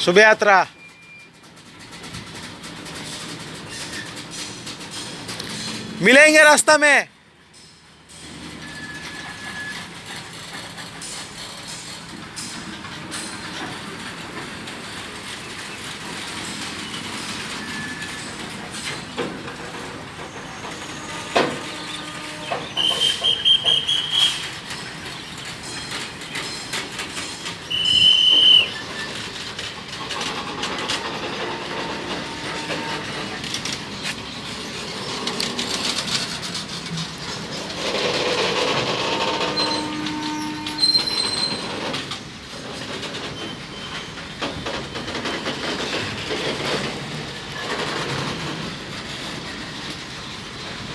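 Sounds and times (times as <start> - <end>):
train wheels clattering on rails: 0.0 - 50.9
high-pitched wheel squeals: 8.5 - 10.5, 20.2 - 29.4, 31.4 - 34.4, 39.1 - 42.0.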